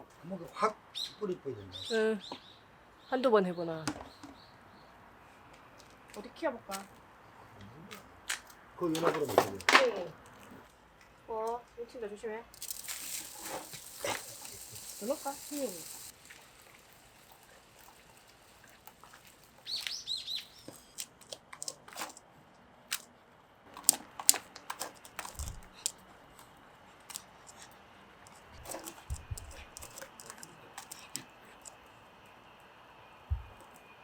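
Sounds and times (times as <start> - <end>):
small bird chirping: 0.9 - 4.9, 12.6 - 21.2
low thuds: 33.3 - 33.6.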